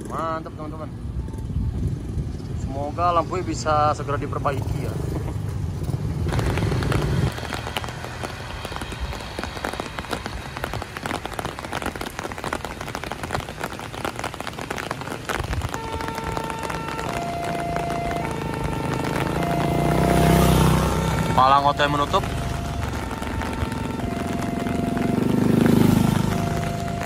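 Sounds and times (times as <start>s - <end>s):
vehicle engine rumbling: 0.0s - 27.0s
rain falling: 3.8s - 27.0s
level-crossing warning alarm: 15.8s - 27.0s.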